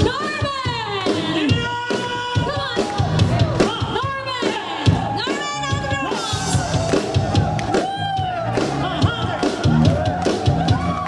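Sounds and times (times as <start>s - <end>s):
drums keeping a steady beat: 0.0s - 11.0s
live pop band playing: 0.0s - 11.0s.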